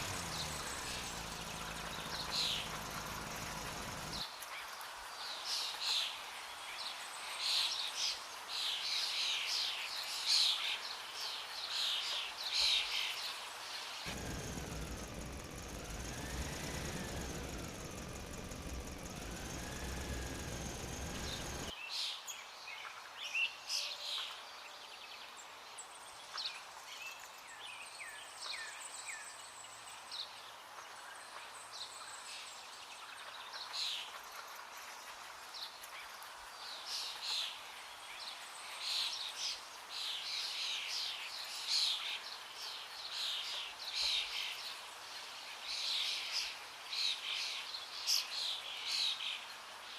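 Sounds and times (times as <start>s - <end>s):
small birds chirping: 0.0s - 4.3s, 14.1s - 21.7s.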